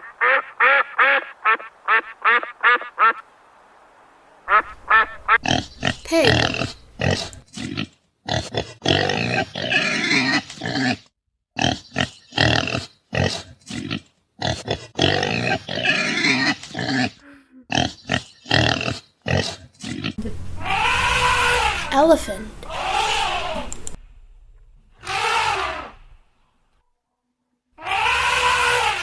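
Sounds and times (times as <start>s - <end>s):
pigs calling: 4.5s - 7.4s, 17.7s - 24.0s.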